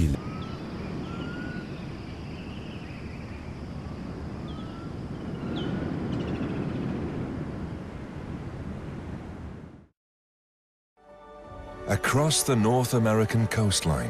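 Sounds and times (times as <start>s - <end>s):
wind rumble: 0.0s - 9.9s.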